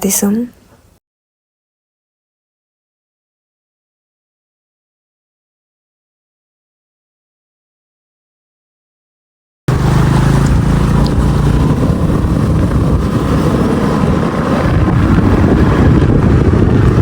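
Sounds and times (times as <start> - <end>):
motor scooter engine running: 9.7 - 17.0.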